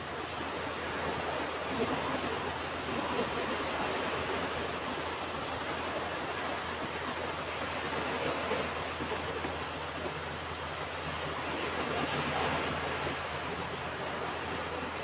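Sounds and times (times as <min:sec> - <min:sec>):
ocean waves breaking on a beach: 0:00.0 - 0:15.0.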